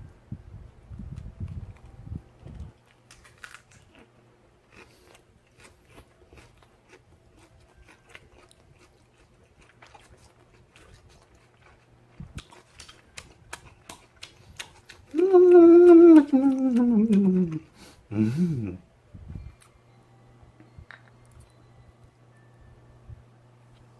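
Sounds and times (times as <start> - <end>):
chewing and biting food: 1.2 - 17.8.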